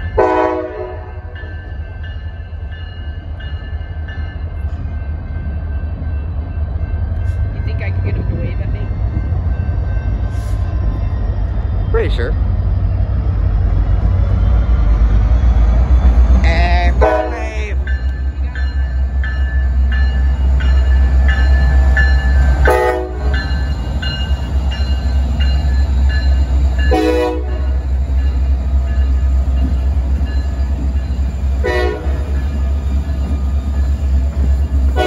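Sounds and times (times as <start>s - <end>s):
freight train rumbling past: 0.0s - 35.0s
bell ringing: 17.8s - 22.7s.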